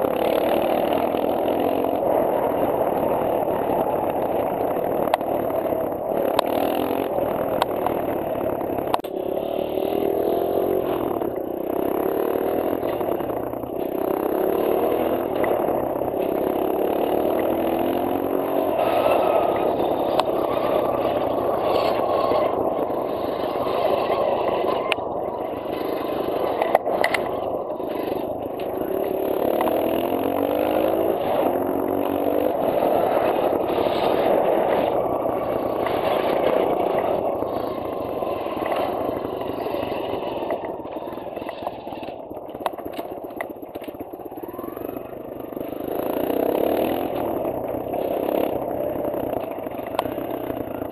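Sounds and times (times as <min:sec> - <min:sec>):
scraping grind: 0:00.0 - 0:44.3
dirt bike engine revving: 0:00.0 - 0:50.9.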